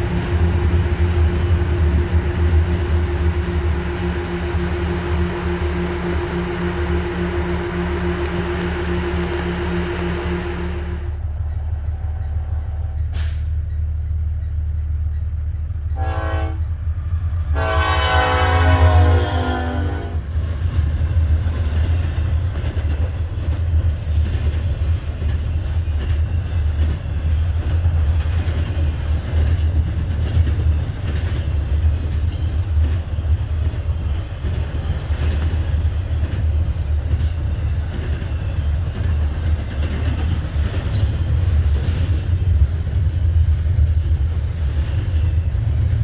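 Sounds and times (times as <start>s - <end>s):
train horn blast: 0.0s - 11.4s, 15.9s - 16.8s, 17.5s - 20.3s
train rolling past: 0.0s - 46.0s.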